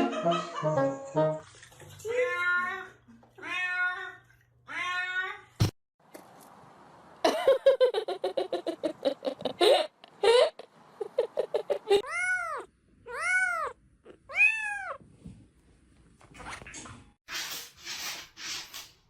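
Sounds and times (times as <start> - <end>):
cat mewing and meowing: 12.0 - 15.0.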